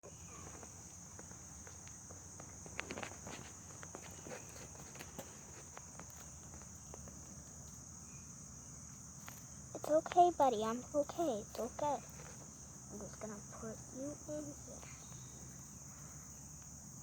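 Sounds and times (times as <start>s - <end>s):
light clicks and rustles: 0.4s - 7.8s, 11.1s - 13.9s.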